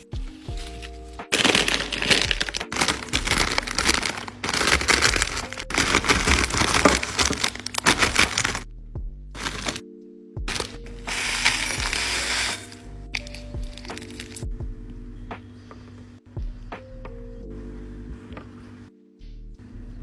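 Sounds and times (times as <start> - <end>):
packet crinkling: 0.0 - 8.6, 9.4 - 9.8, 10.5 - 14.4
tortilla chips crunching: 0.5 - 8.6, 10.5 - 14.4.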